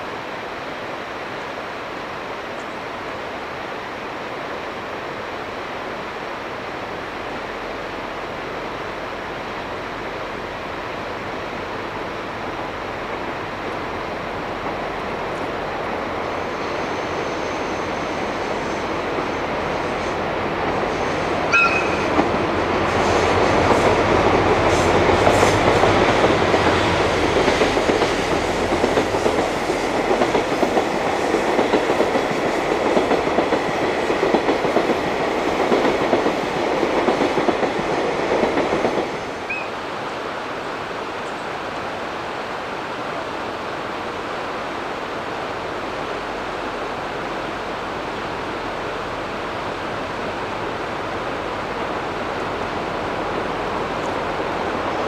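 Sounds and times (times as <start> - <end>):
steady rushing noise: 17.9 - 55.0
train wheels clattering: 20.6 - 39.2
high squeal: 21.0 - 22.1.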